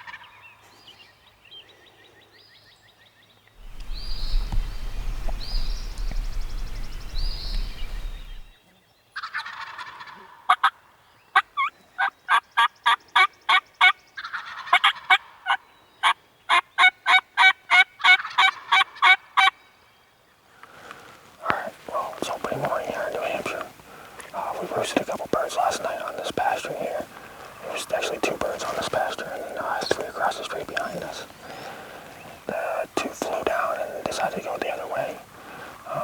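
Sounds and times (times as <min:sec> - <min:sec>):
low microphone rumble: 0:03.6 - 0:08.5
sharp repeated bird notes: 0:03.6 - 0:08.5
turkeys gobbling: 0:09.3 - 0:10.6, 0:14.3 - 0:15.3, 0:16.8 - 0:19.5, 0:21.4 - 0:34.6.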